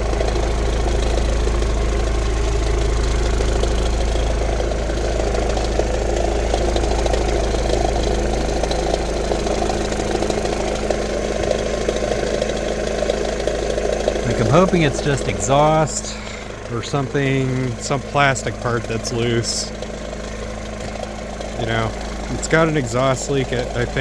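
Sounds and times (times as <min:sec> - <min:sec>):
car engine idling: 0:00.0 - 0:24.0
rapid knocking tick: 0:00.0 - 0:24.0.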